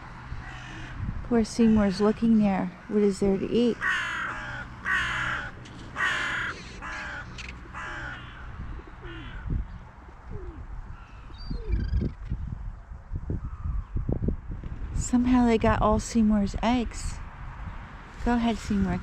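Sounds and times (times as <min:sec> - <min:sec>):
crows cawing: 0:00.4 - 0:09.7.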